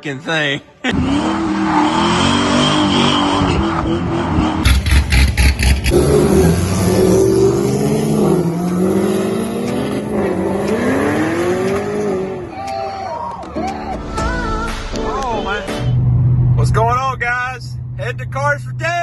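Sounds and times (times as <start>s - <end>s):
car engine revving: 0.9s - 12.5s.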